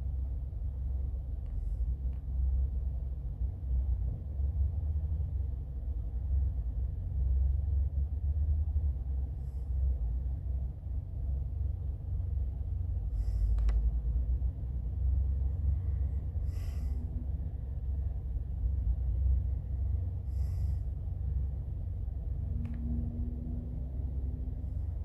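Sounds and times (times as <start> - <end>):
steady low rumble: 0.0 - 25.0
short hissing breaths: 13.1 - 13.6, 16.4 - 17.1, 20.3 - 20.9.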